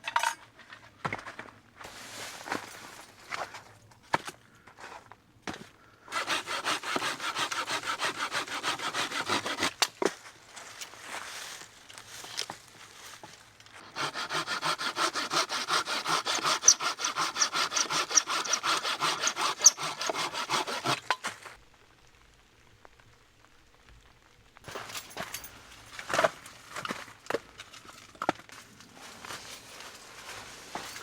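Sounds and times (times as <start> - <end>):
hand saw cutting wood: 6.1 - 9.9, 13.8 - 21.2.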